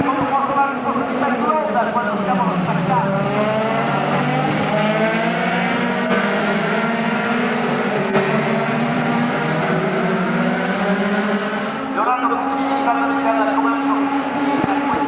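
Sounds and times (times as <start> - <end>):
race car engines accelerating: 0.0 - 15.0.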